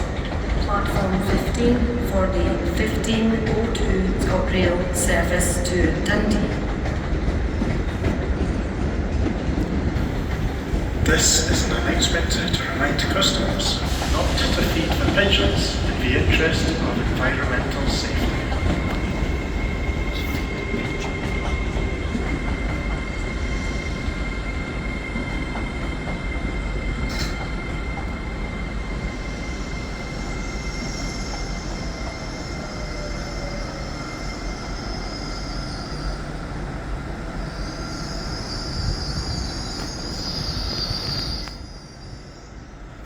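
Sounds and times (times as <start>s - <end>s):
high-pitched brake squeal: 37.5s - 42.5s.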